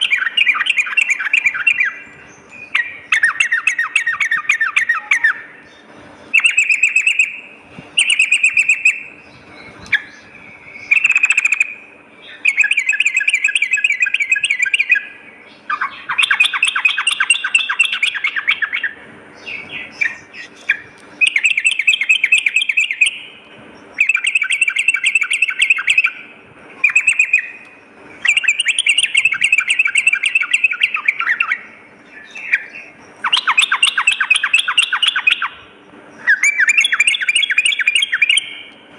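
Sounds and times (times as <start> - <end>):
bird chattering calls: 0.0 - 38.8.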